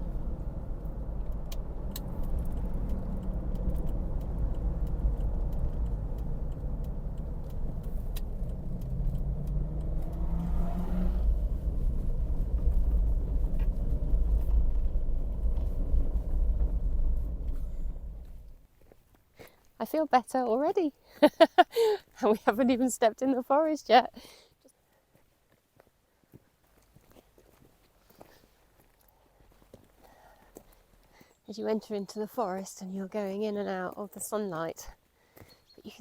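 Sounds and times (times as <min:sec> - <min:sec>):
car engine and road noise: 0:00.0 - 0:19.4.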